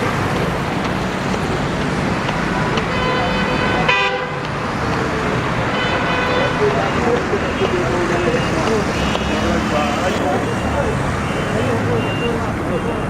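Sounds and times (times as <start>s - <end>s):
busy street traffic: 0.0s - 13.0s
vehicle horn toots: 2.8s - 4.5s, 5.7s - 6.7s.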